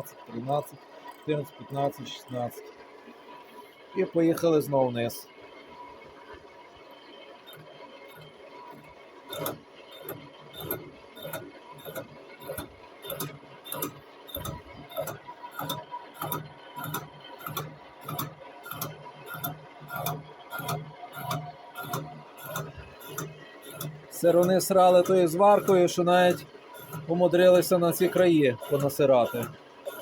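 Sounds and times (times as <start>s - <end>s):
boring machine cutting ticking: 0.0s - 2.6s, 4.0s - 5.1s, 7.4s - 30.0s
machine hum: 6.9s - 30.0s.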